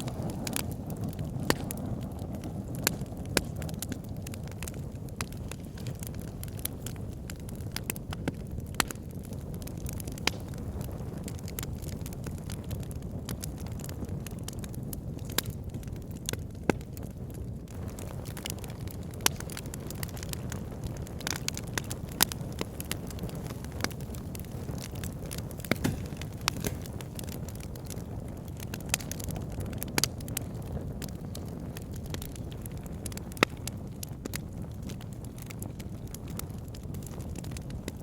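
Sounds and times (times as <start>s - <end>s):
low rumble of flames: 0.0s - 38.0s
wood fire crackling: 0.0s - 38.0s
sharp pops and snaps: 1.4s - 1.9s, 4.5s - 10.9s, 17.7s - 29.3s.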